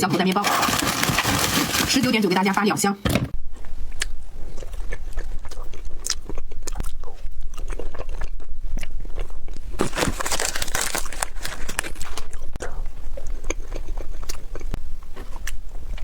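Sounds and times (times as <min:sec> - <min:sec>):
person biting and chewing food: 0:03.4 - 0:16.0.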